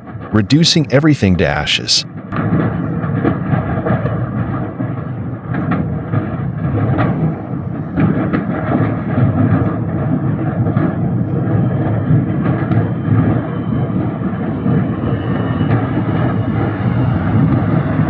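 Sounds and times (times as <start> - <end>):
fire rumbling: 0.2 - 15.1.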